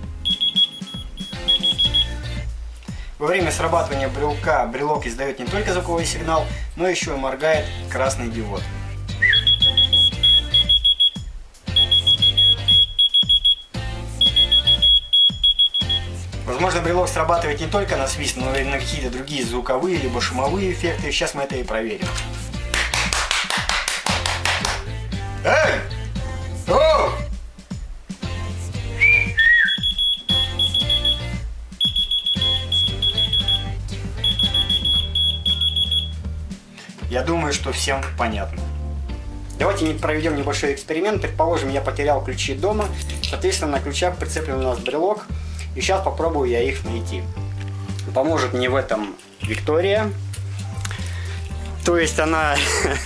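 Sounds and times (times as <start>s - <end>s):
background music: 0.0s - 53.0s
person whistling: 0.2s - 2.2s, 9.1s - 16.2s, 28.9s - 36.2s
key finder beeping: 0.3s - 2.1s, 9.3s - 11.2s, 11.8s - 13.6s, 14.2s - 16.0s, 29.5s - 31.2s, 31.8s - 36.1s.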